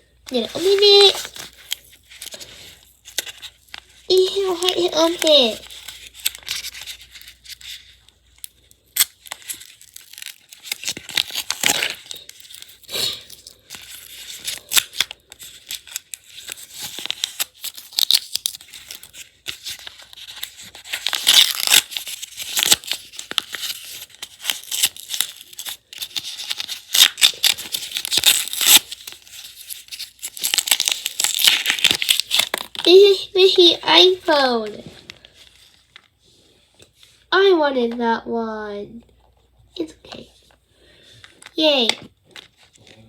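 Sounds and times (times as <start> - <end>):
plastic bag tearing and crinkling: 0.3 - 8.0, 8.9 - 34.5.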